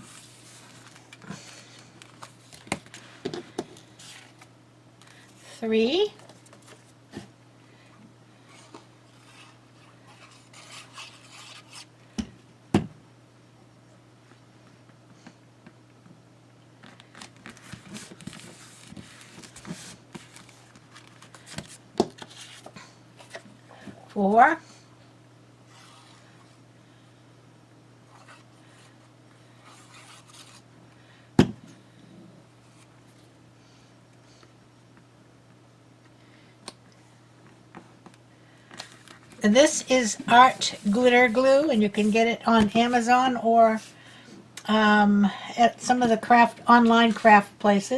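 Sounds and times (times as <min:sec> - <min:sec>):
paper rustling: 0:00.0 - 0:03.1, 0:16.9 - 0:23.4, 0:29.6 - 0:30.6, 0:38.8 - 0:43.0
faint steady hum: 0:00.0 - 0:47.9
paper rubbing on surface: 0:08.5 - 0:11.9, 0:39.6 - 0:42.2.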